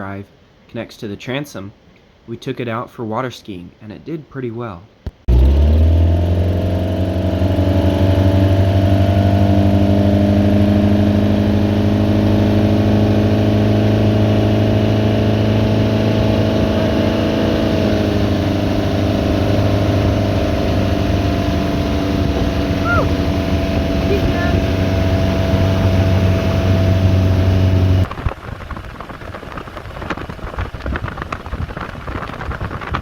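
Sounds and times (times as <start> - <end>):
boat engine droning: 5.3 - 28.1.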